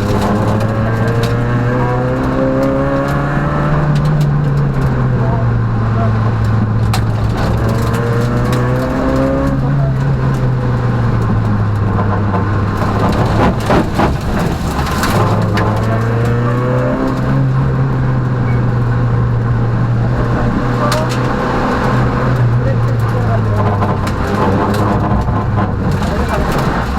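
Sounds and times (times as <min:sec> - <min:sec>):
knocks and clatter: 0:00.0 - 0:05.0, 0:06.3 - 0:26.9
rally car engine accelerating: 0:00.0 - 0:26.9.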